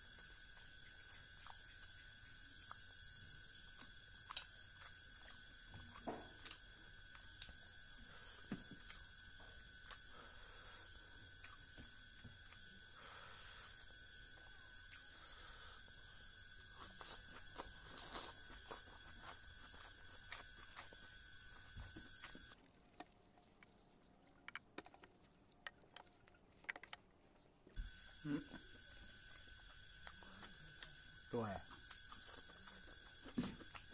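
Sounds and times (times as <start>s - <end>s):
chewing and mouth clicks: 0.1s - 7.6s, 8.8s - 10.1s, 16.8s - 33.9s.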